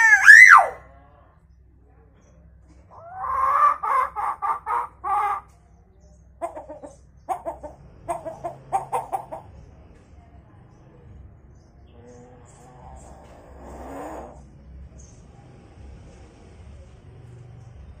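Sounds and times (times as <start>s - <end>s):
bird mimicking hen clucking: 0.0s - 0.8s, 2.9s - 5.6s, 6.4s - 9.5s.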